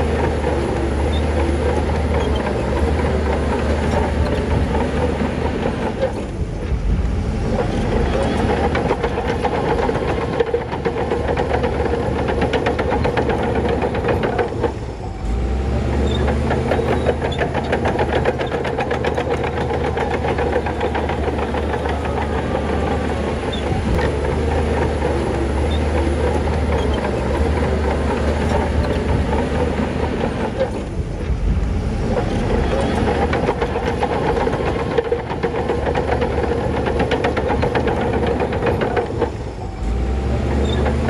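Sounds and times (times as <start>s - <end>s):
bulldozer diesel engine running: 0.0s - 41.0s.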